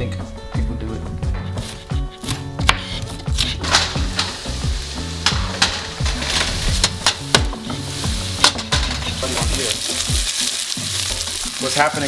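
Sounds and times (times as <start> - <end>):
music with deep bass beat: 0.1 - 11.6
onions sizzling in a pan: 3.4 - 12.0.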